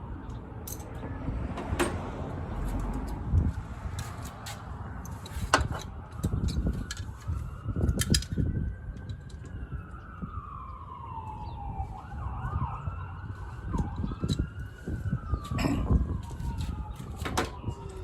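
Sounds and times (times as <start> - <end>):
distant siren wailing: 4.6 - 18.0.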